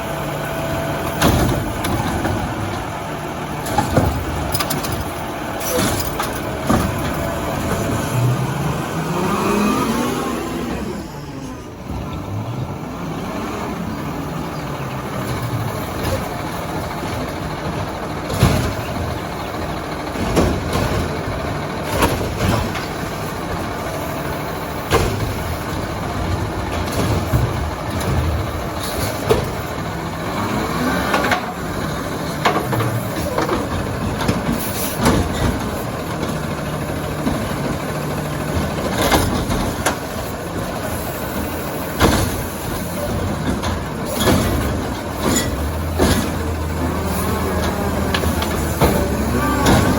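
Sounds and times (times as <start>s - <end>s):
garbage truck engine running: 0.0s - 49.9s
sharp knocks and bangs: 24.8s - 29.9s, 41.9s - 49.9s.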